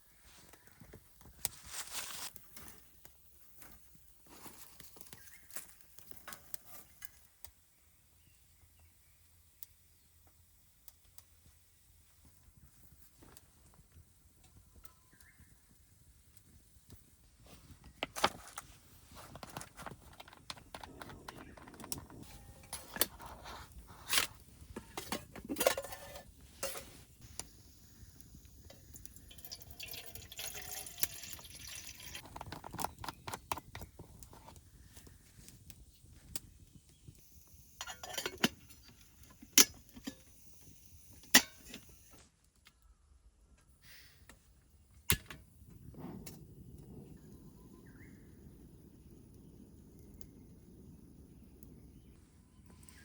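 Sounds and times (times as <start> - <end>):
metal cookware clinking: 24.8 - 27.0, 37.8 - 40.2, 41.3 - 41.8.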